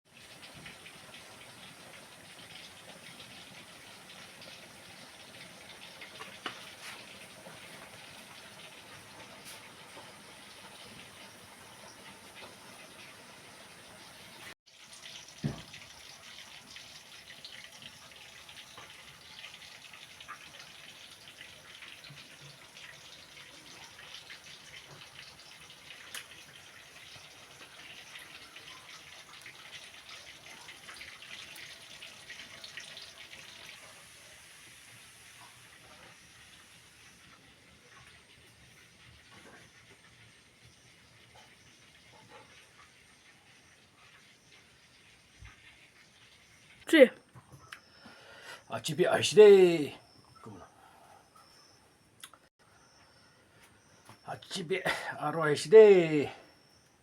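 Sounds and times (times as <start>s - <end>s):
tap running into sink: 15.4s - 15.9s.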